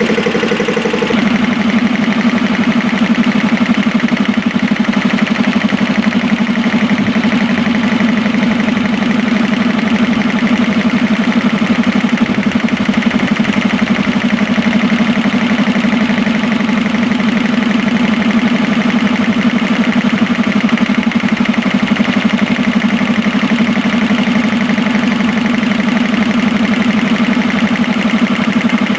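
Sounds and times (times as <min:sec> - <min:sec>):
air compressors humming: 0:00.0 - 0:15.4.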